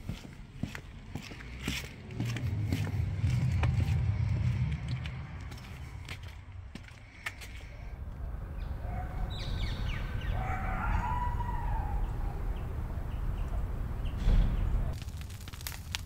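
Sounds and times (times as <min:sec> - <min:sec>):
low rumble: 0:00.9 - 0:09.0.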